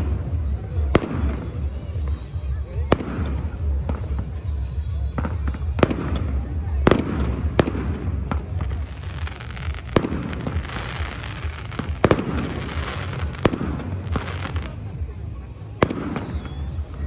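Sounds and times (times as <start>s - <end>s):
firework crackling: 0.0s - 17.0s.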